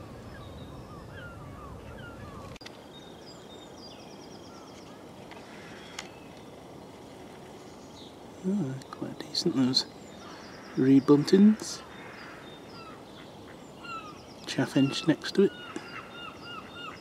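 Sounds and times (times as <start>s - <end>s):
birds calling: 0.0s - 17.0s
high bird trill: 7.6s - 17.0s.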